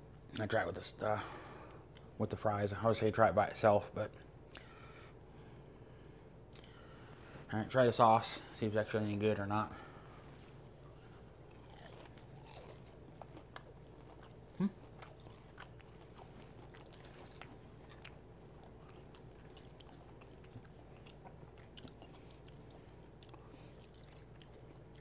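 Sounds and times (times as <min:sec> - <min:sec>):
person chewing crispy fries: 0:10.5 - 0:25.0.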